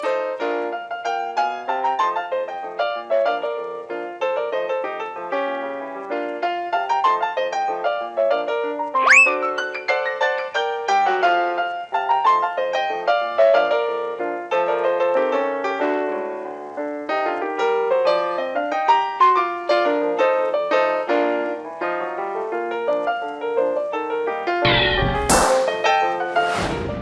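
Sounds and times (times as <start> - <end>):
lively piano music: 0.0 - 27.0.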